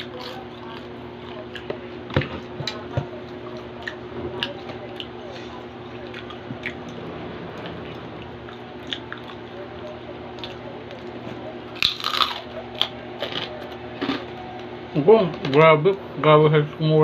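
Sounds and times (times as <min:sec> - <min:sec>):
steady low hum: 0:00.0 - 0:17.0
crunchy chewing: 0:11.8 - 0:14.3.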